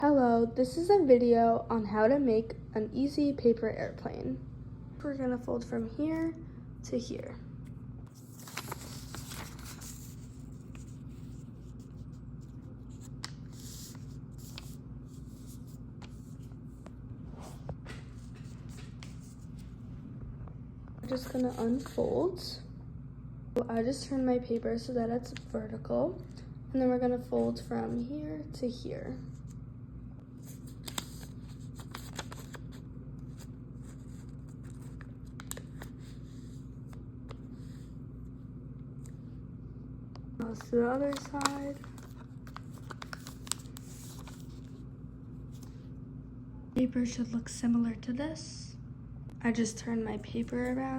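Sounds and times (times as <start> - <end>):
steady low hum: 0.0 - 50.9
paper rustling and creasing: 8.1 - 19.8, 30.4 - 36.7, 40.5 - 44.8.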